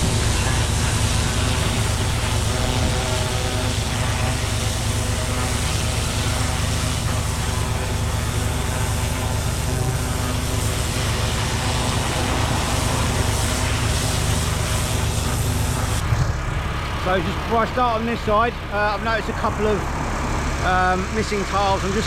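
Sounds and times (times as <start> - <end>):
pressure washer spray hiss: 0.0 - 16.1
washer engine drone: 0.0 - 22.0.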